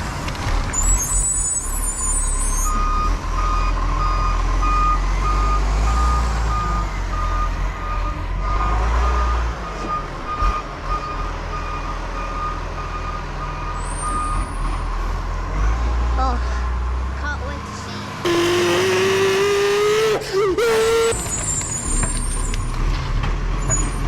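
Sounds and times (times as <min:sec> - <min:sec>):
diesel engine rumble: 0:14.6 - 0:24.0.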